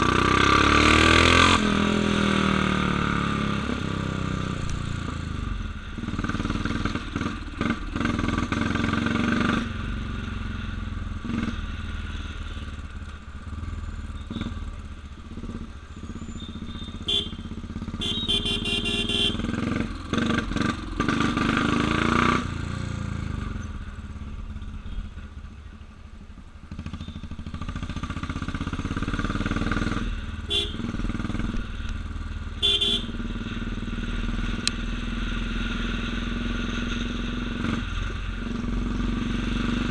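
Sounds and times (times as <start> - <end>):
motorcycle engine running: 1.6 - 39.9
vehicle horn short blasts: 16.8 - 19.4, 30.5 - 30.9, 32.6 - 33.2.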